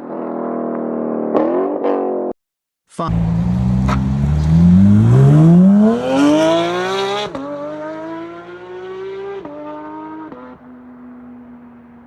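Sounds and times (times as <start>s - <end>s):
car engine accelerating: 3.0s - 10.5s.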